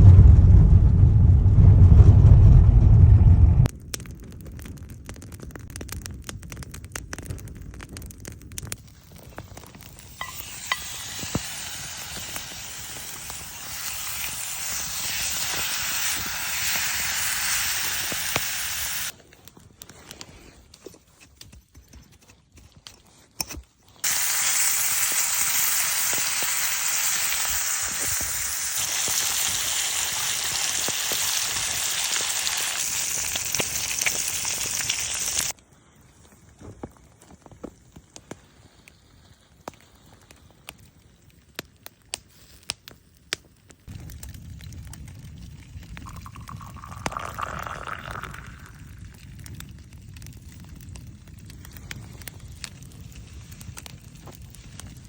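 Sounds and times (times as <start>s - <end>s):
scattered crackles and clicks: 1.6s - 55.0s
food sizzling in a frying pan: 10.0s - 19.1s, 24.0s - 35.6s.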